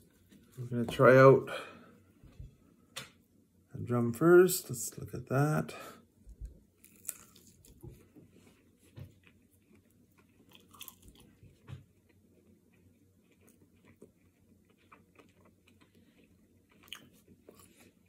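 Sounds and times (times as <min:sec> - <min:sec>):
person chewing crispy chicken: 0:06.7 - 0:18.0.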